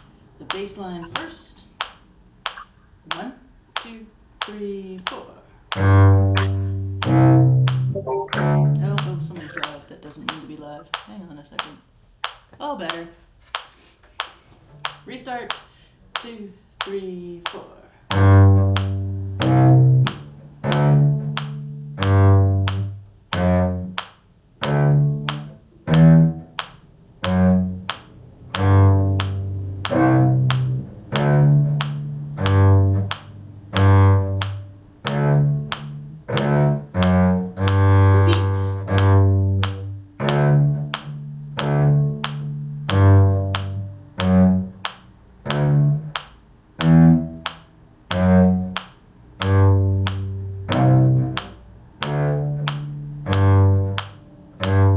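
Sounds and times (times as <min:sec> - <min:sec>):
cello playing slow bass line: 0:05.7 - 0:09.6, 0:18.0 - 0:54.9.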